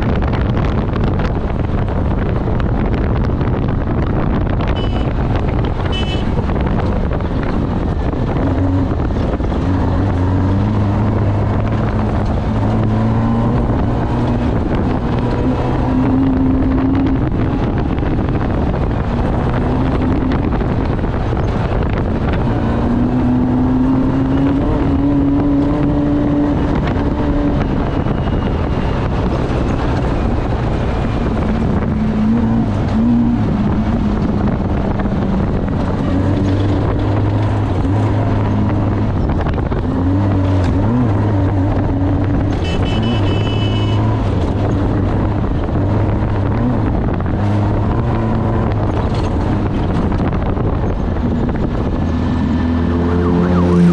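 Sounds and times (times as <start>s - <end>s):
off-road vehicle engine running hard: 0.0s - 53.9s
wind noise: 0.0s - 53.9s
brief high tone: 52.9s - 53.9s.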